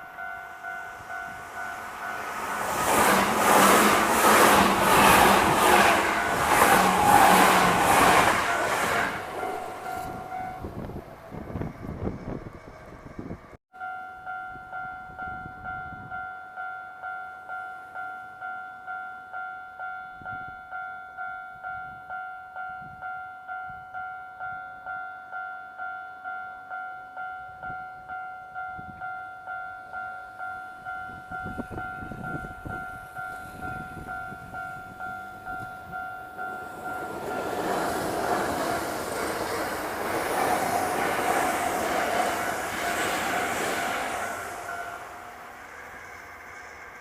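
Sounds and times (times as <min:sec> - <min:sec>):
two-tone crossing bell: 0:00.0 - 0:07.2, 0:08.1 - 0:11.6, 0:13.8 - 0:40.0, 0:42.4 - 0:46.8
train rumble: 0:00.0 - 0:13.6, 0:31.2 - 0:47.0.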